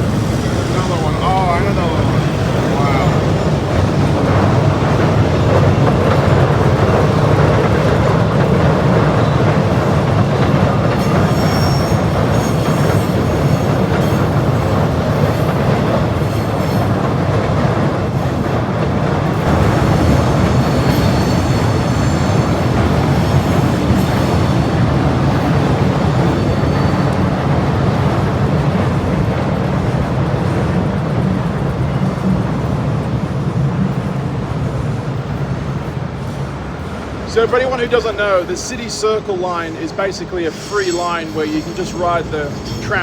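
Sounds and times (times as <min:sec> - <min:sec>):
electric train rumbling on rails: 0:00.0 - 0:43.0
high-pitched wheel squeal: 0:00.1 - 0:04.1, 0:11.0 - 0:14.3, 0:20.2 - 0:24.8, 0:26.0 - 0:27.4, 0:40.4 - 0:43.0.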